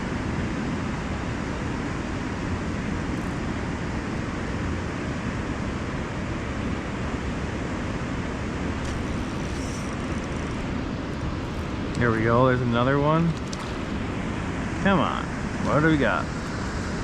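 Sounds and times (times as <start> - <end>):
river current rushing: 8.8 - 17.0.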